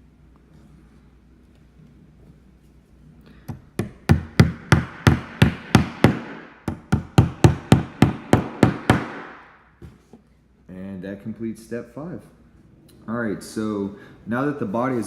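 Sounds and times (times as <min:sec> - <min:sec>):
hammer driving nails into wood: 0:03.5 - 0:09.5.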